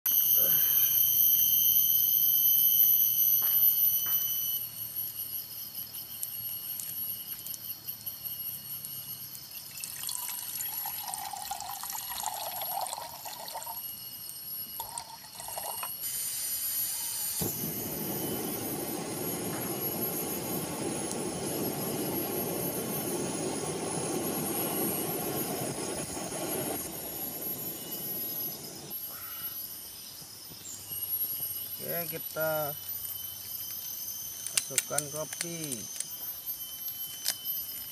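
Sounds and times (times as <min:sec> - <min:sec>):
high-pitched insect buzzing: 0:00.1 - 0:22.4, 0:23.2 - 0:37.9
water pouring into a pot: 0:09.5 - 0:16.0.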